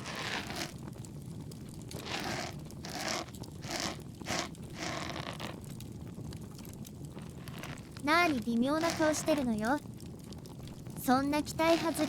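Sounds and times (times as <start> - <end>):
ear pick scraping: 0.0 - 0.8, 1.9 - 5.6, 7.4 - 9.5, 11.7 - 12.0
bonfire crackling: 0.0 - 12.0.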